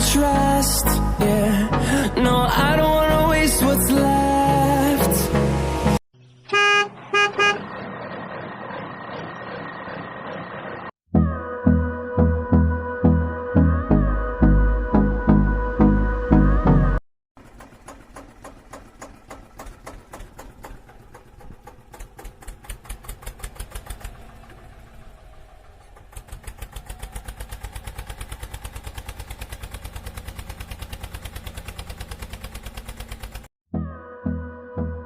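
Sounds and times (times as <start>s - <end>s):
engine chugging: 17.4s - 33.5s.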